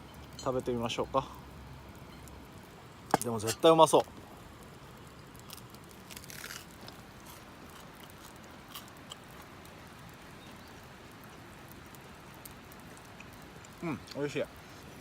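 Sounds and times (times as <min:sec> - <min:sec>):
person chewing crunchy food: 0:05.5 - 0:09.5.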